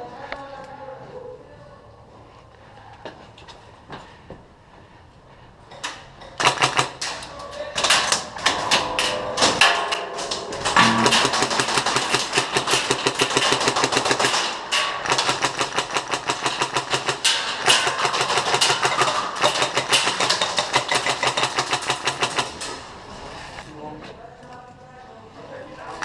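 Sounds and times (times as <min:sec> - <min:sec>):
airsoft gun full-auto bursts: 0:06.4 - 0:07.0, 0:10.8 - 0:22.6.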